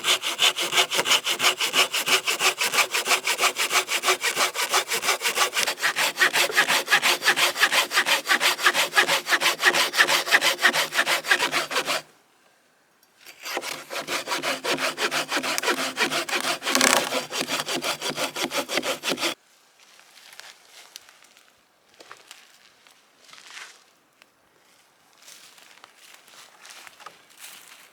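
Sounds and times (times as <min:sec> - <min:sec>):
hand saw cutting wood: 0:00.0 - 0:12.1, 0:13.3 - 0:19.4.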